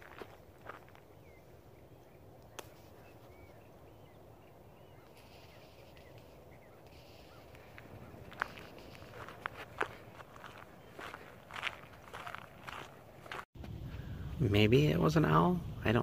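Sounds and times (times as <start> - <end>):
faint bird chirps: 0.8 - 12.5.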